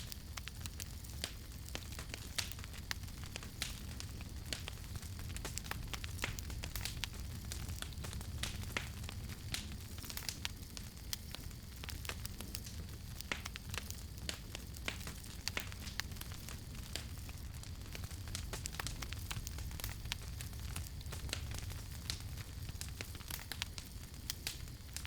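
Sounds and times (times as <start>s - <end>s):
campfire crackling and popping: 0.0s - 25.0s
low rumble of flames: 0.0s - 25.0s.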